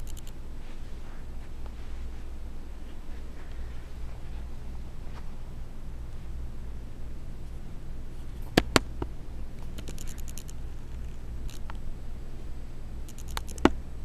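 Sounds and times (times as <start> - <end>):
sharp clicks: 0.0 - 0.4, 9.6 - 11.8, 13.1 - 13.8
light scratching or ticking: 0.0 - 4.5, 9.6 - 11.8, 13.1 - 13.7
steady low hum: 0.0 - 14.0.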